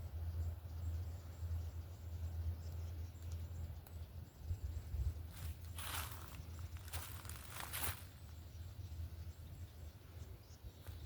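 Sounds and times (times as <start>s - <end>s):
footstep crunching on forest floor: 5.3s - 8.3s.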